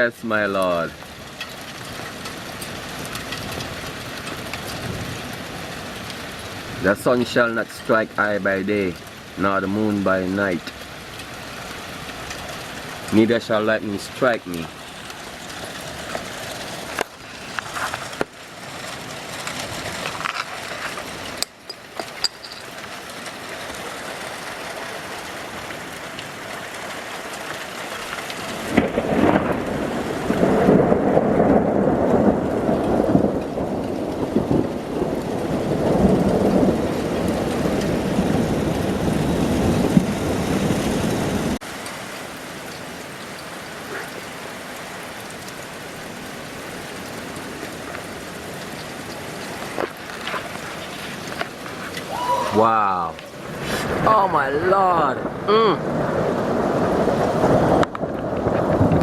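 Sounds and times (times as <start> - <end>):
steady rain: 0.0 - 59.0
rolling thunder: 28.5 - 41.6, 52.0 - 59.0.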